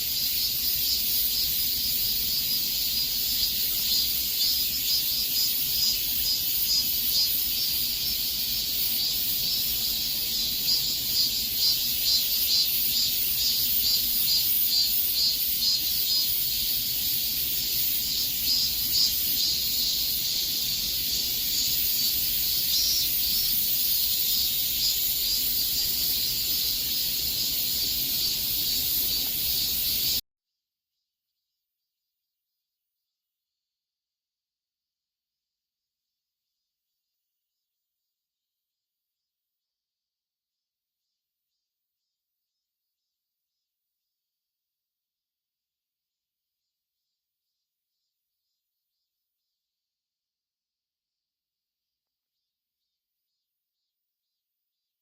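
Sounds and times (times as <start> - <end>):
cicadas singing: 0.0 - 30.2.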